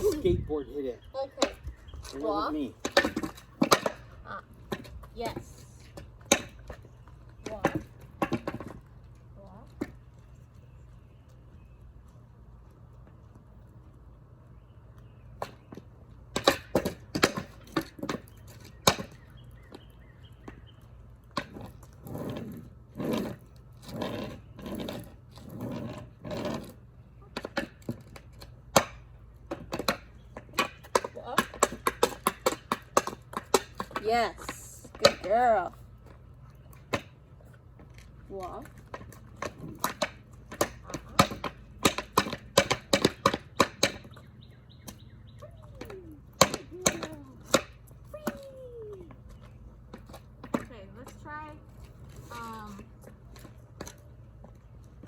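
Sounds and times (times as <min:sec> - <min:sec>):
scraping against the ground: 0:21.3 - 0:28.6.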